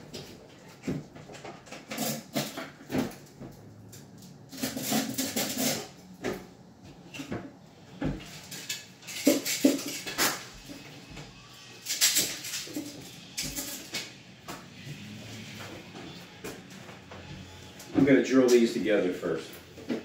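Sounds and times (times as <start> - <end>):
tools clattering: 1.0 - 6.1, 8.0 - 10.8, 11.8 - 14.1.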